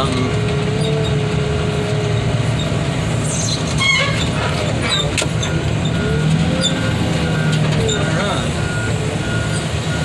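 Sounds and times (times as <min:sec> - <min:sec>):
diesel engine under load: 0:00.0 - 0:10.0
squeaky metal scraping: 0:02.6 - 0:06.9.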